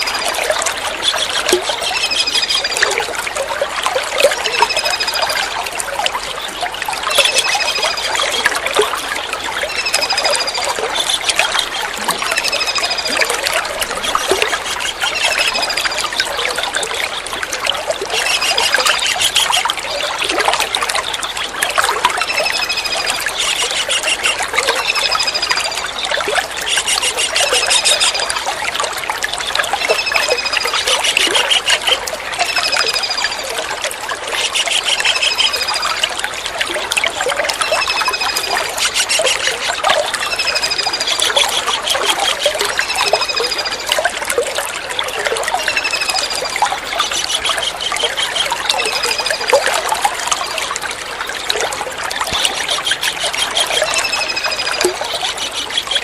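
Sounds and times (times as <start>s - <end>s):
trickle of running water: 0.0s - 56.0s
kingfisher calls: 18.0s - 19.7s, 22.2s - 28.3s, 29.8s - 32.0s, 34.3s - 35.9s, 37.6s - 43.8s, 45.6s - 49.4s.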